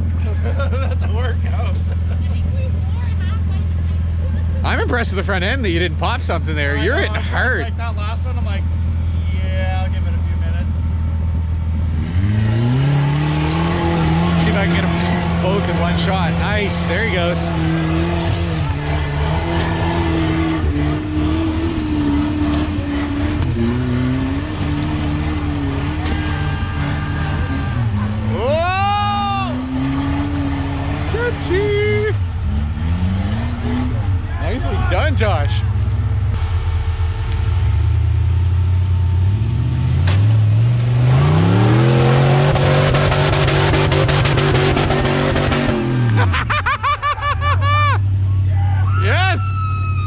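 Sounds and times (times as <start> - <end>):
engine revving under load: 11.6 - 46.8.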